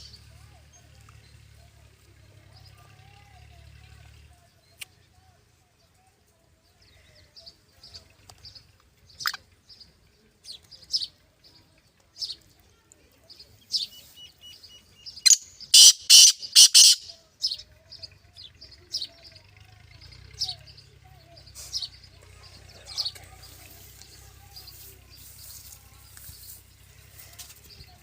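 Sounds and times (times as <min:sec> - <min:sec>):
short high bird chirps: 0:13.7 - 0:17.2
harsh grating bird call: 0:15.2 - 0:17.6.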